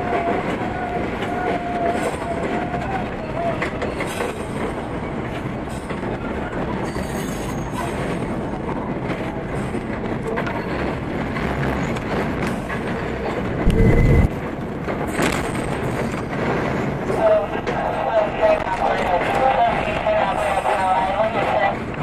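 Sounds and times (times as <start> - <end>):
subway wheels rumbling on rail: 0.0 - 22.0
heavy low thump: 13.6 - 14.3.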